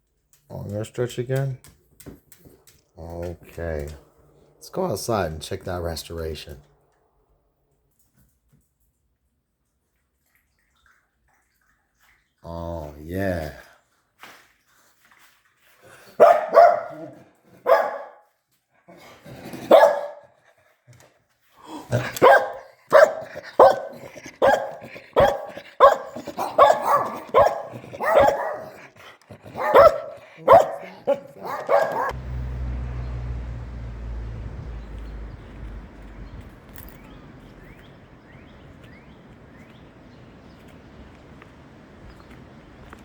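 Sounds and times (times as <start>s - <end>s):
dog barking: 16.2s - 18.2s, 19.6s - 20.3s, 22.0s - 28.8s, 29.5s - 32.2s
steady low rumble: 32.1s - 42.8s.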